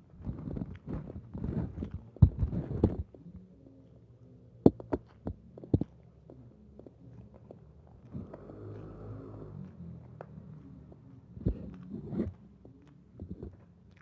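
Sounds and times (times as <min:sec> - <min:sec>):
chewing with wet crackles: 0:10.0 - 0:14.0.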